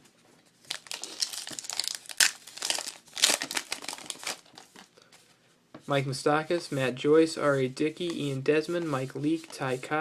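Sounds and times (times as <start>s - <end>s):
foil wrapper crinkling: 0.6s - 4.9s
foil tearing: 0.7s - 4.6s.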